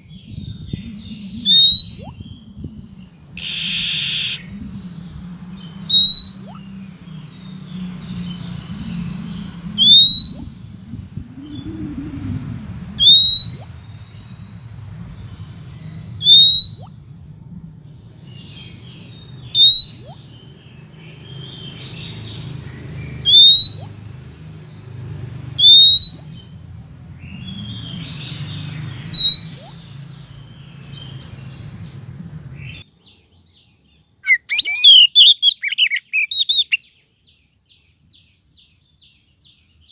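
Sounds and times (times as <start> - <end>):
low hum: 0.3 - 6.0, 6.6 - 13.1, 16.9 - 19.6
bird whistled call: 0.8 - 2.3, 3.4 - 4.6, 5.9 - 6.7, 9.8 - 12.3, 13.0 - 13.8, 16.2 - 17.1, 19.5 - 20.3, 23.2 - 24.0, 25.6 - 26.4, 29.1 - 29.9, 34.2 - 36.8.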